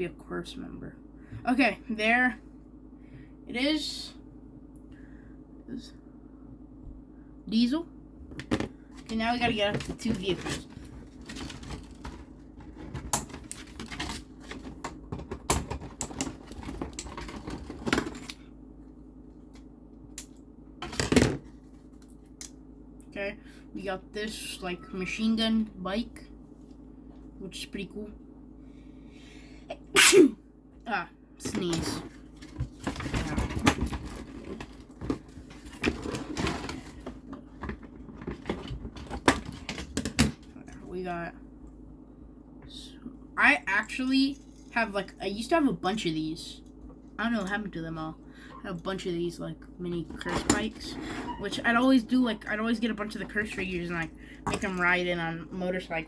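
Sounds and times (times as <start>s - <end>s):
plastic toys being handled: 8.5s - 18.4s.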